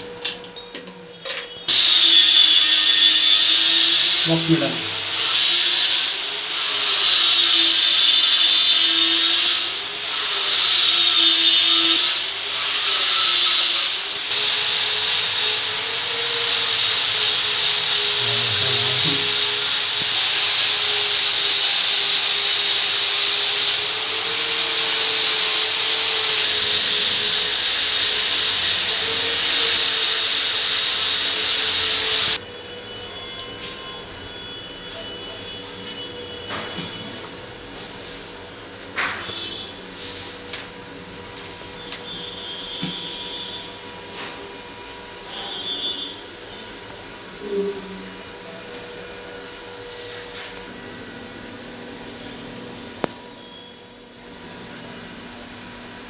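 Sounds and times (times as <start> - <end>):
electric drill running: 1.7 - 32.4.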